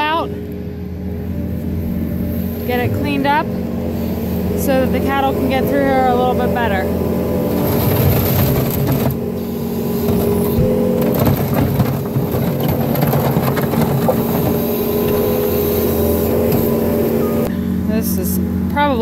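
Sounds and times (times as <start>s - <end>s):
diesel engine running under load: 0.0s - 19.0s
bucket scraping mud across concrete: 7.4s - 17.5s.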